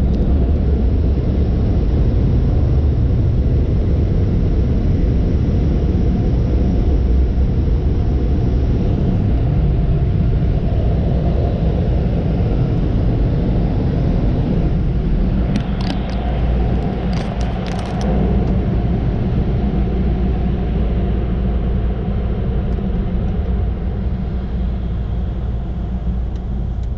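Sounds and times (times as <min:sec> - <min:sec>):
car road and engine noise: 0:00.0 - 0:26.9.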